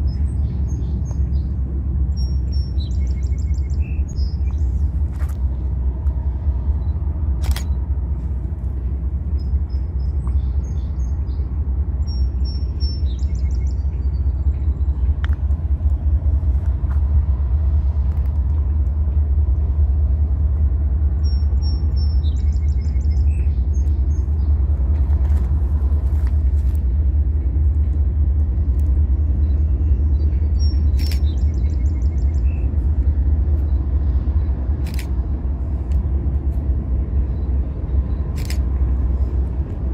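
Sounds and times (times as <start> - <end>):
songbird singing: 0.0 - 5.6, 8.7 - 16.9, 21.0 - 27.6, 28.5 - 35.3, 37.0 - 39.4
low rumble: 0.0 - 39.9
sharp clicks: 7.4 - 7.8, 30.9 - 31.4, 34.8 - 35.2, 38.3 - 38.7.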